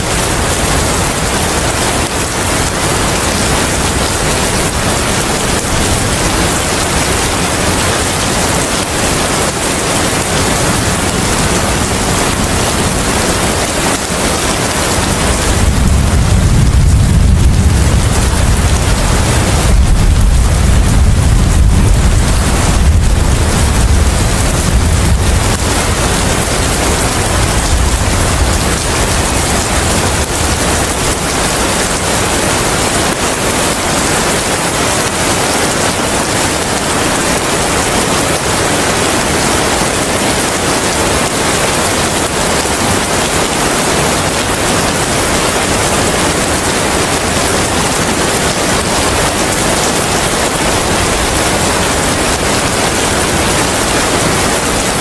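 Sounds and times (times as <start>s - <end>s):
heavy rain hissing: 0.0s - 55.0s
low rumble: 15.4s - 30.9s.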